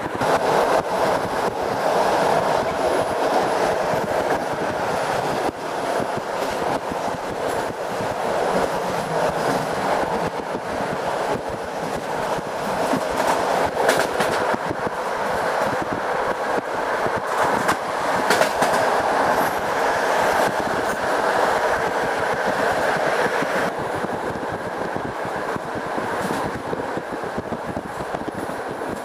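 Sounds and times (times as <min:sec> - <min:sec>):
wheels clacking over rail joints: 0:00.0 - 0:23.8
train wheels rumbling on rails: 0:00.0 - 0:29.0.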